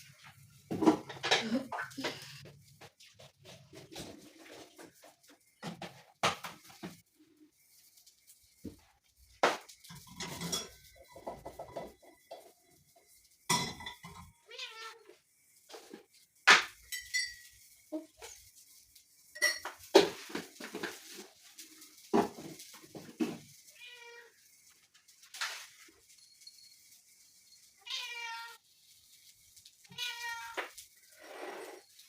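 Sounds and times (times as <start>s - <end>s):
pots and utensils clinking: 0.0s - 2.7s, 8.5s - 14.8s, 15.6s - 24.1s.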